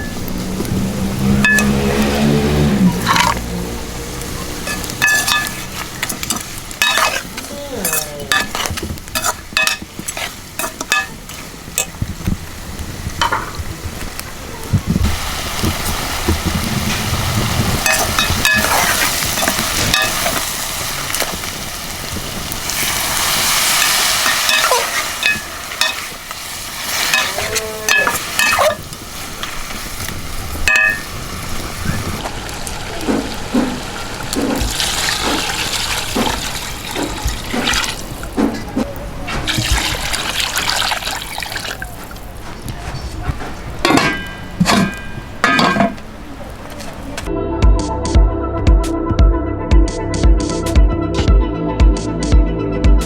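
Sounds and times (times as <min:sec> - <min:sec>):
meat sizzling in hot oil: 0:00.0 - 0:14.2, 0:14.9 - 0:38.4, 0:39.5 - 0:41.8
metal spoon scraping a pot: 0:04.6 - 0:11.2, 0:17.8 - 0:20.4.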